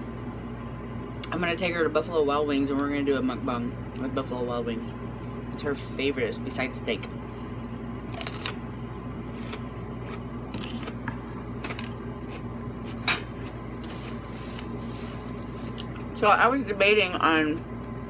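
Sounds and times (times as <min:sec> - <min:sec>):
steady low hum: 0:00.0 - 0:18.0
person chewing: 0:08.1 - 0:08.6, 0:09.3 - 0:13.0.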